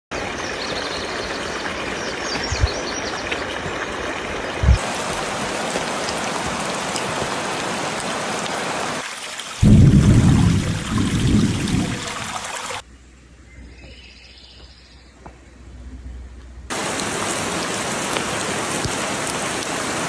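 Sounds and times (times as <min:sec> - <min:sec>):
rushing water or rain: 0:00.1 - 0:12.9, 0:16.7 - 0:20.0
loud low rumble: 0:09.6 - 0:12.2.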